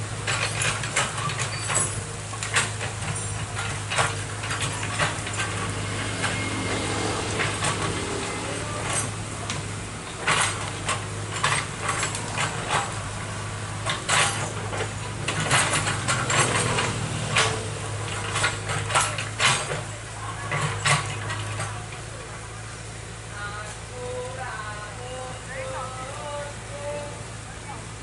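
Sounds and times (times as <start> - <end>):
excavator diesel engine running: 0.0 - 28.0
metallic clanks and knocks: 0.2 - 22.0.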